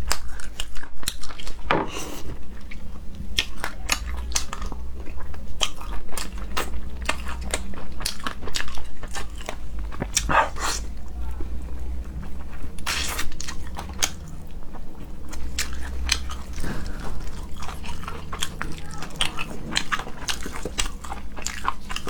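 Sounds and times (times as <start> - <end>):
person chewing and smacking: 0.0 - 22.0
wet sucking sounds: 10.2 - 11.0.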